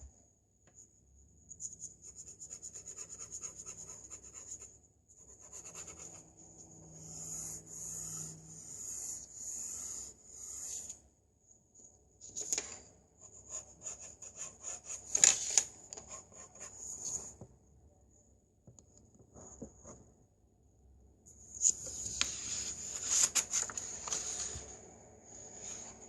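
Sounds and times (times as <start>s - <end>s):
pencil scratching on paper: 1.6s - 11.0s, 13.2s - 15.2s, 16.0s - 17.3s.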